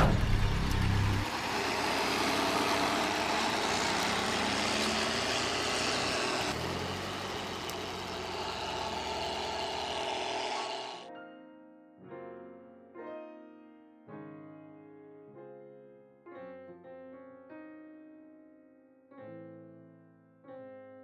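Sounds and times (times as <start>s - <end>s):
engine running: 0.0s - 11.1s.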